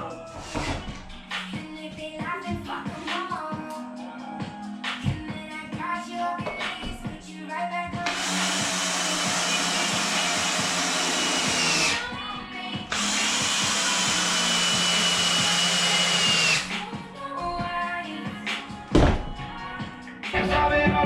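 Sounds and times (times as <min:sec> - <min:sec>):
power tool whining: 0:08.1 - 0:12.1, 0:12.9 - 0:16.7.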